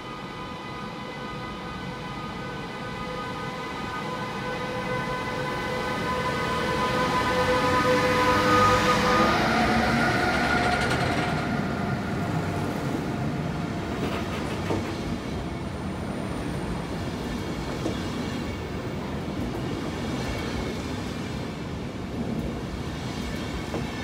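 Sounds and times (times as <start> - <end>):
electric locomotive drive whine: 0.0 - 24.0
train coaches rumbling: 4.7 - 24.0
train wheel clatter: 9.9 - 11.6, 14.0 - 15.1.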